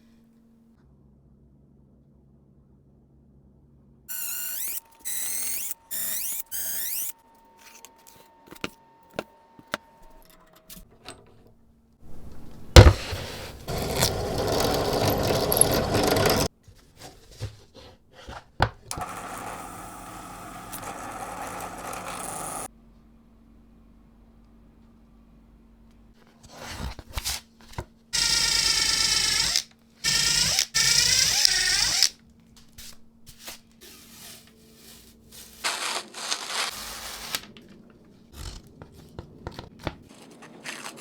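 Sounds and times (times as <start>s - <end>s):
small motor whining: 4.1s - 8.0s, 18.9s - 22.7s
power tool running roughly: 18.9s - 22.7s.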